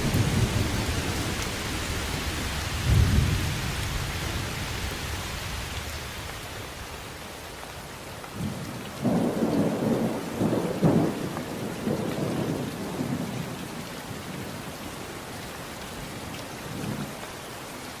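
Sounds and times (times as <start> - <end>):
thunder rumbling: 0.0 - 5.8, 8.4 - 13.6
steady rain: 0.0 - 18.0.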